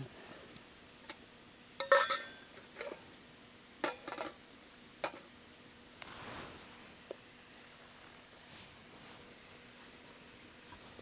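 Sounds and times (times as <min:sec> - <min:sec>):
utensils clinking on cookware: 0:01.8 - 0:02.4
soft rush of noise: 0:05.9 - 0:11.0.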